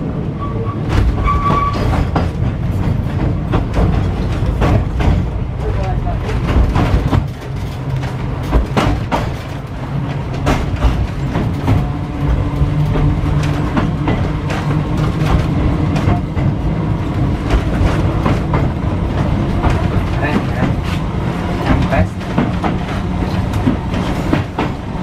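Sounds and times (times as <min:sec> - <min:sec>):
tram rumbling: 0:00.0 - 0:25.0
wheels clattering over rails: 0:00.7 - 0:25.0.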